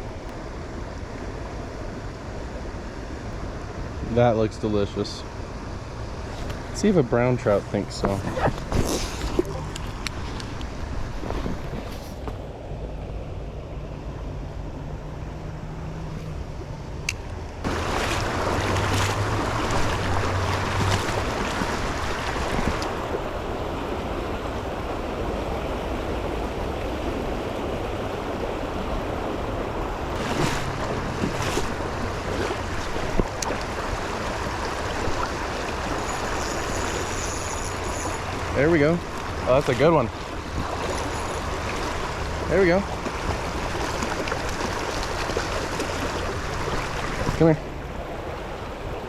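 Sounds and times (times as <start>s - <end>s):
river water rushing over rocks: 16.3s - 49.0s.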